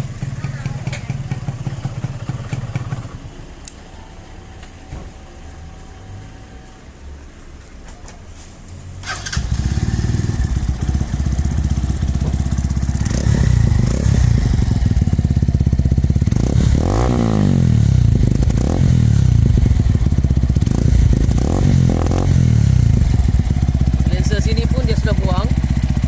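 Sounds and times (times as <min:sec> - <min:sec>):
motorcycle engine revving: 0:00.0 - 0:03.3, 0:09.0 - 0:26.0.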